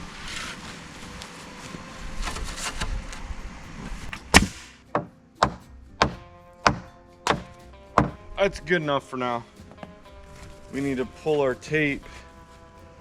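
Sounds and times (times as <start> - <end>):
ringing hammer strikes: 4.4 - 8.2
scuffing: 9.7 - 11.0.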